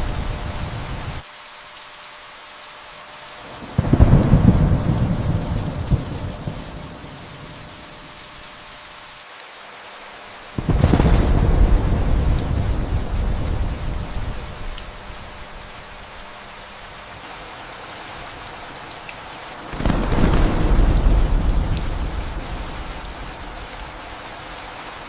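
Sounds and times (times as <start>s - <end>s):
steady rain: 0.0s - 25.0s
thunder rolling: 3.7s - 7.6s, 10.6s - 16.3s, 19.7s - 24.0s.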